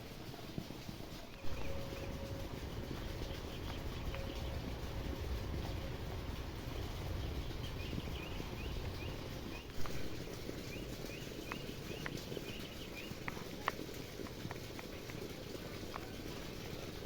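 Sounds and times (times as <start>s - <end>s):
steady low rumble: 1.2s - 17.0s
small birds chirping: 1.3s - 16.4s.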